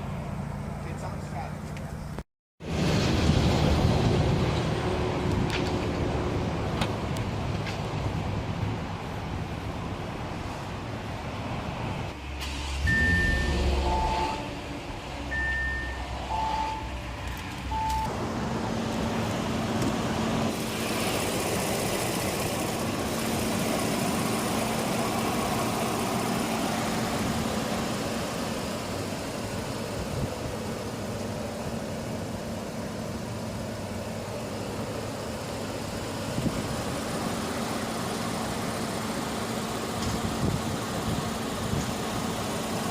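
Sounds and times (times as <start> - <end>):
two-pitch electronic chime beeps: 12.9 - 14.5, 15.3 - 16.9
car engine idling: 20.5 - 42.9.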